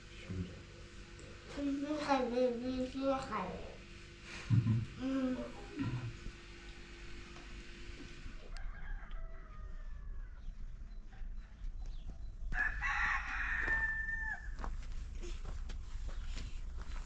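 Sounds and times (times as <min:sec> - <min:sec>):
rooster crowing: 0:08.4 - 0:10.6, 0:12.5 - 0:14.7.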